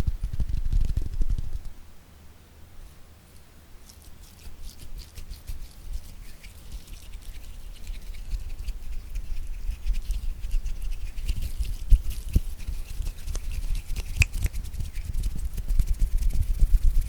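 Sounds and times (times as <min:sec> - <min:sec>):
rapid finger tapping: 0:03.9 - 0:17.0.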